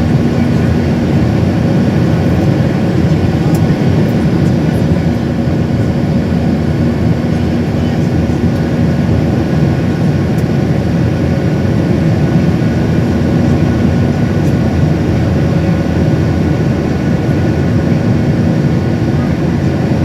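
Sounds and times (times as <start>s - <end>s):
airliner engines roaring: 0.0s - 20.0s.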